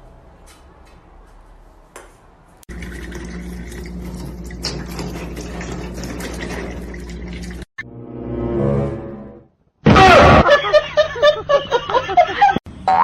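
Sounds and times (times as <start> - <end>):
water running: 2.6 - 7.7.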